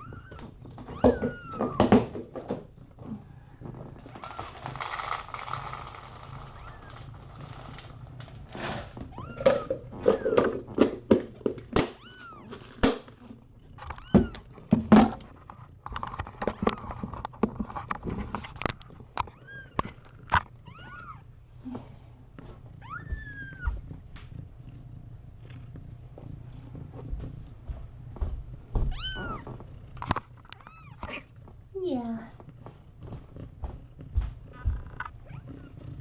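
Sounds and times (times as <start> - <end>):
kittens mewing: 0.0 - 7.9, 8.5 - 13.2, 13.8 - 14.6, 18.5 - 21.9, 22.8 - 23.9, 28.8 - 31.4, 33.1 - 36.0.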